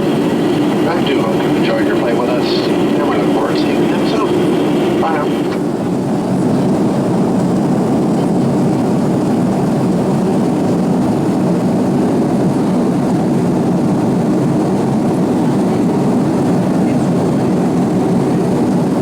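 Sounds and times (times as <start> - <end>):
airplane cabin airflow: 0.0 - 19.0
jet engines humming: 0.0 - 19.0.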